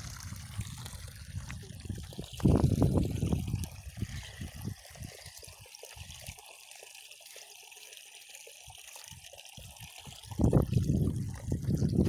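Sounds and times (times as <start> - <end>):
water splashing: 0.0 - 7.2
water trickling: 0.0 - 12.0.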